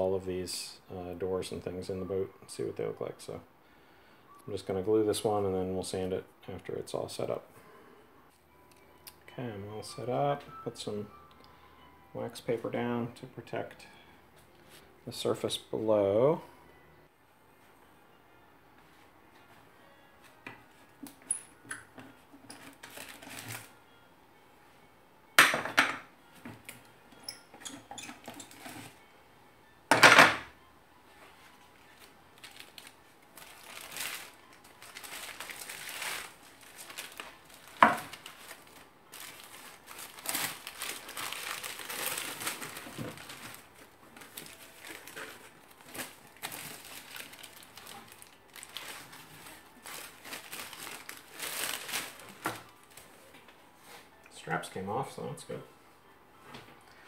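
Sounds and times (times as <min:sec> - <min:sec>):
wax paper crinkling: 0:22.6 - 0:23.7, 0:31.6 - 0:53.2.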